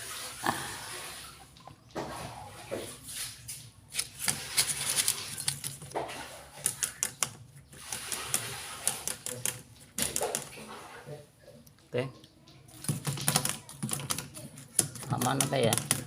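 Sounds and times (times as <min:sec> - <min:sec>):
sharp clicks and taps: 0:11.6 - 0:16.0.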